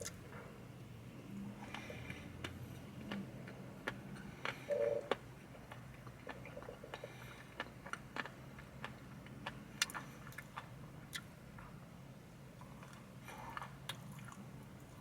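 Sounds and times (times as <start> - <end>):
chewing mouth clicks and smacks: 1.7 - 11.7, 12.6 - 15.0.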